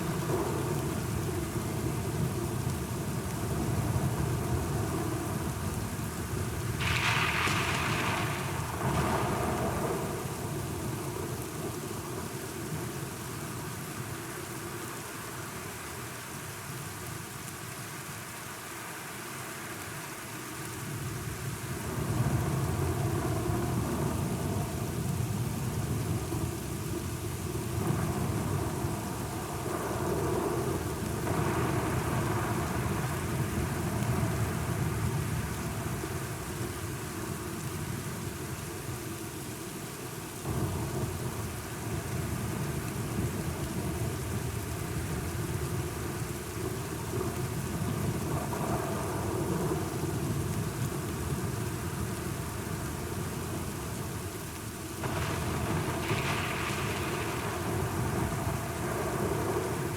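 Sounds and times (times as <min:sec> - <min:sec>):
steady rain: 0:00.0 - 0:59.9
rolling thunder: 0:06.7 - 0:10.9, 0:55.0 - 0:59.9.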